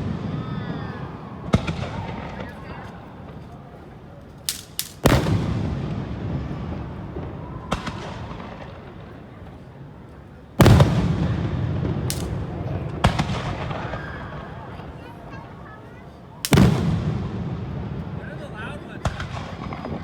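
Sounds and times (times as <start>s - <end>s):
lighter firework cracks: 4.3s - 6.2s, 6.8s - 9.4s, 10.6s - 14.9s, 16.4s - 17.8s, 19.0s - 20.0s
firework shells bursting: 4.4s - 5.5s, 12.0s - 13.8s, 16.4s - 17.0s.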